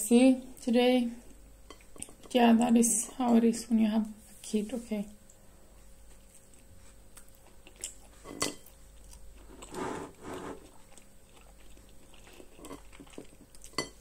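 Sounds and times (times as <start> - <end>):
toast crunching and chewing: 6.0 - 14.0.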